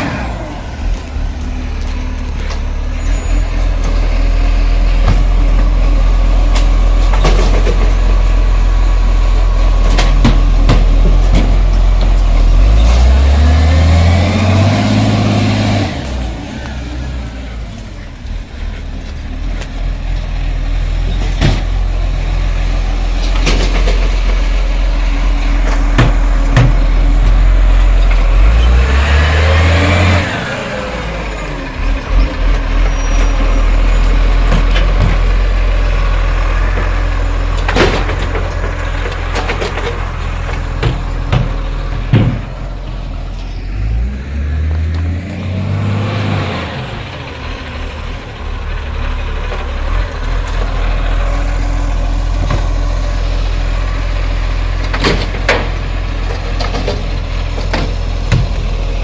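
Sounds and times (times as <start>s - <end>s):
garbage truck diesel engine: 0.0s - 59.0s
sharp knocks and bangs: 5.0s - 5.8s, 9.8s - 12.5s, 21.1s - 21.9s, 23.2s - 24.6s, 25.5s - 28.6s, 36.6s - 42.9s, 54.8s - 58.8s.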